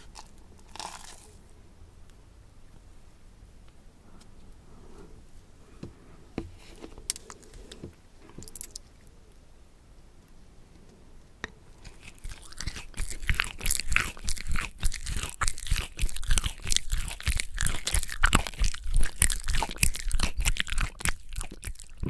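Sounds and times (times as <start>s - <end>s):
crunchy food being chewed: 0.0s - 1.6s, 8.3s - 9.4s, 11.7s - 22.0s.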